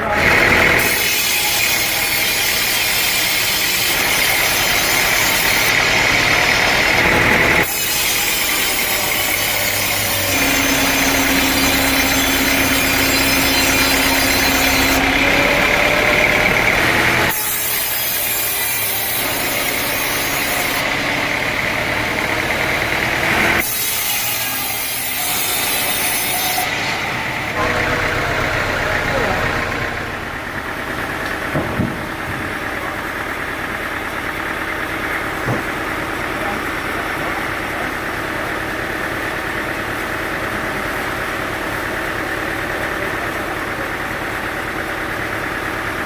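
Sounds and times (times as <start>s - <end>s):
sawmill saw cutting log: 0.0s - 46.0s.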